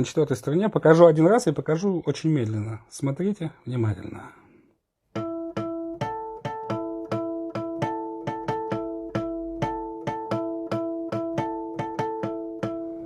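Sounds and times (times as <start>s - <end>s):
guitar harmonics plucked: 5.2s - 13.0s.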